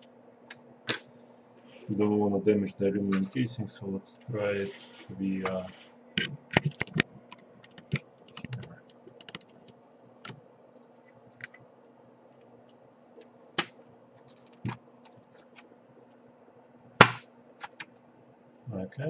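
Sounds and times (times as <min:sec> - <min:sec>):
faint low hum: 0:00.0 - 0:19.0
laptop case clicking and snapping: 0:06.2 - 0:09.5, 0:17.0 - 0:17.9.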